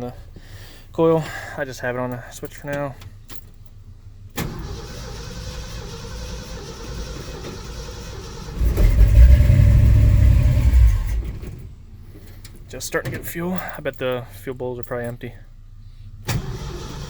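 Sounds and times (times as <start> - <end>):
engine cranking by starter: 4.3 - 12.6, 16.2 - 17.0.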